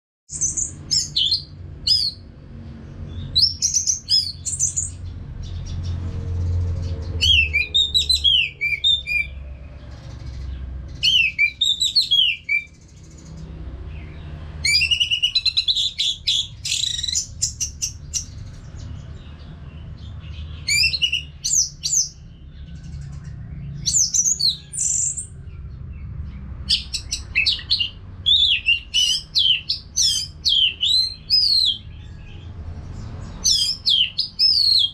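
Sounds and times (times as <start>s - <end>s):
thrush singing whistled phrases: 0.3s - 2.2s, 3.4s - 4.9s, 7.2s - 9.4s, 11.0s - 12.8s, 14.6s - 18.2s, 20.6s - 22.2s, 26.7s - 31.9s, 33.4s - 34.9s.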